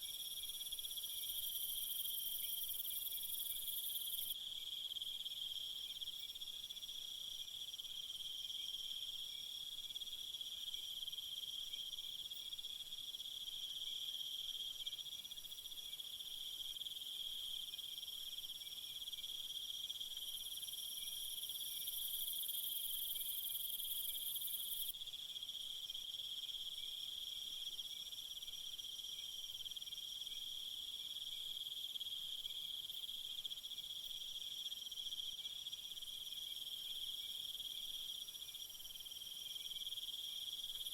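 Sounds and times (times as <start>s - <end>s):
crickets chirring: 0.1s - 5.0s, 20.2s - 24.9s.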